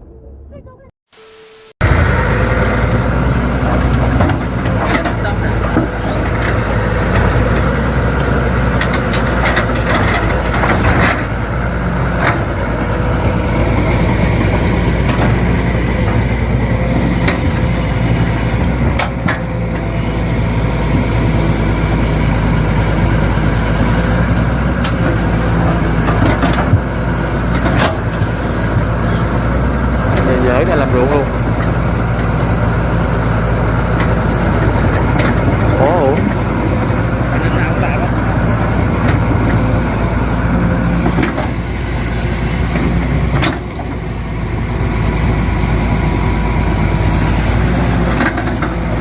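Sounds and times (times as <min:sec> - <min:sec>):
large vehicle engine running: 0:01.8 - 0:49.0.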